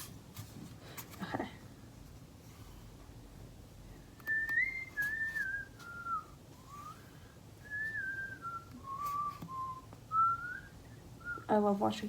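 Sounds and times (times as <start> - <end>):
person whistling a tune: 4.2 - 11.5.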